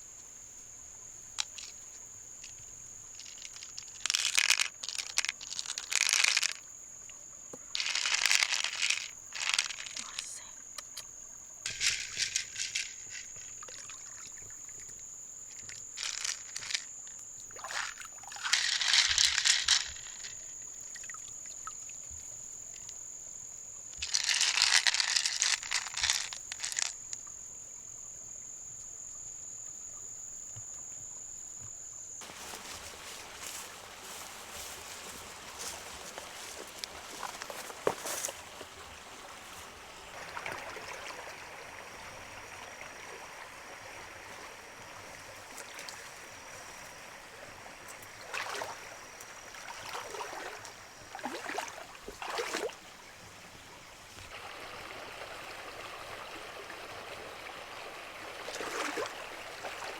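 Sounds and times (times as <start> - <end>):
crackling rustling noise: 1.3 - 6.6, 7.6 - 10.4, 11.7 - 13.7, 15.5 - 20.5, 24.0 - 27.0, 32.2 - 40.2.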